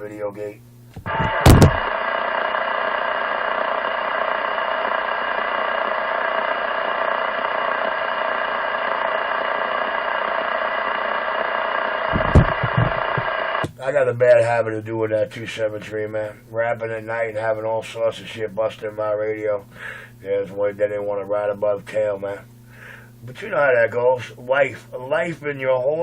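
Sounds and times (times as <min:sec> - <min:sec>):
radio buzzing noise with tones: 0:00.0 - 0:14.4
radio transmission pop: 0:00.9 - 0:02.0, 0:12.1 - 0:13.8.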